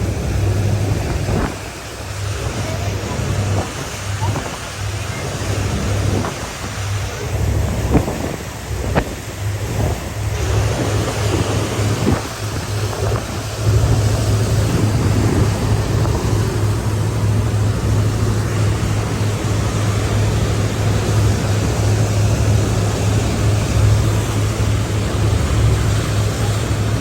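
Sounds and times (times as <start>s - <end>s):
boat engine droning: 0.0s - 27.0s
water rushing: 0.0s - 27.0s
wind noise: 0.0s - 27.0s.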